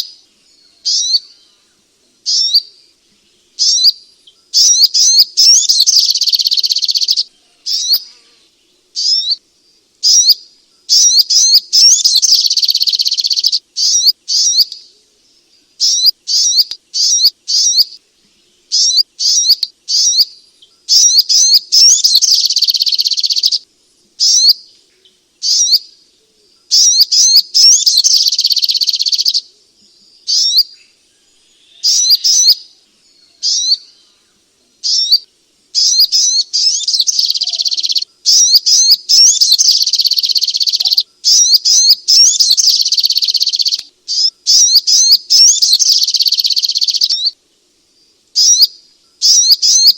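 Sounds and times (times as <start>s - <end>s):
bird chirping: 0.0s - 49.9s
bird rapid chattering: 4.6s - 8.0s, 10.0s - 14.7s, 18.8s - 20.3s, 20.9s - 23.6s, 26.7s - 29.4s, 35.8s - 47.3s, 48.4s - 49.9s.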